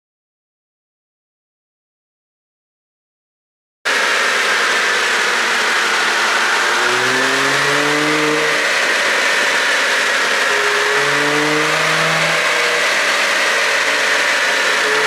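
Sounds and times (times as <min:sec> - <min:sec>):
car engine revving: 0:03.9 - 0:15.0
loud steady hiss: 0:03.9 - 0:15.0.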